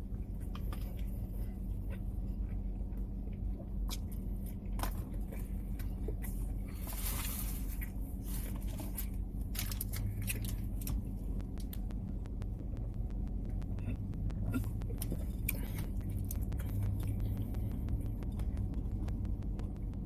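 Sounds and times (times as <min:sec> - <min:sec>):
steady low hum: 0:00.0 - 0:20.0
person chewing food: 0:00.1 - 0:20.0.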